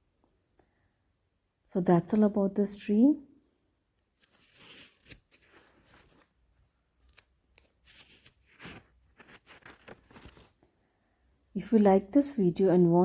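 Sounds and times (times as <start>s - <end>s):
faint rustling and crackling: 3.9s - 11.2s.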